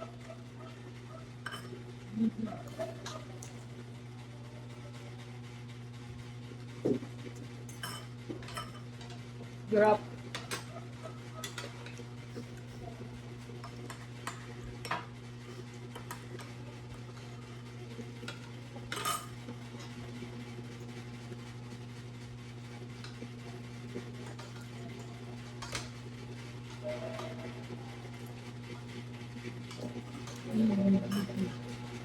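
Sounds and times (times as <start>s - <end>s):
cutlery clinking against plates: 1.4s - 1.8s, 7.7s - 9.2s, 10.3s - 12.6s, 15.9s - 16.5s, 18.2s - 20.0s, 24.2s - 26.0s, 29.7s - 31.8s.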